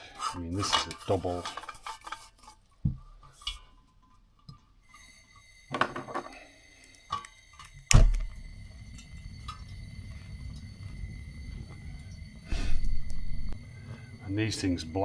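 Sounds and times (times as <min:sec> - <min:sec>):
metal heater knocks and clatters: 0:00.2 - 0:02.3.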